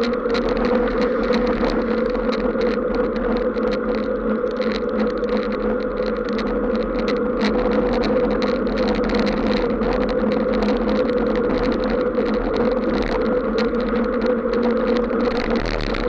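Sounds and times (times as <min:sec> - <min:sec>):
vehicle hum on wet road: 0:00.0 - 0:16.0.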